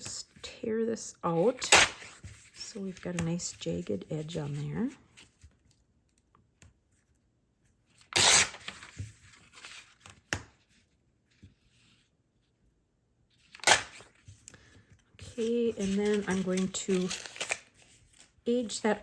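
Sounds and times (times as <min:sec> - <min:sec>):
paper ripping: 0:01.5 - 0:03.2, 0:08.0 - 0:10.2, 0:13.4 - 0:14.2, 0:15.2 - 0:19.0
paper rustling: 0:08.0 - 0:12.1, 0:13.4 - 0:19.0.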